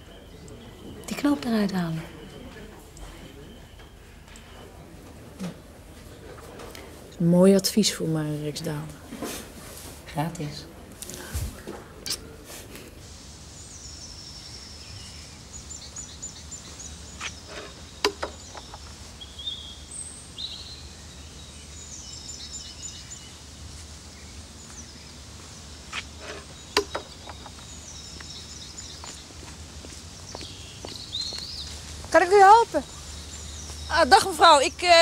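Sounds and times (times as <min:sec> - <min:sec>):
small birds trilling and chirping: 0:13.1 - 0:35.0
sharp knocks: 0:17.5 - 0:18.7, 0:26.2 - 0:27.6.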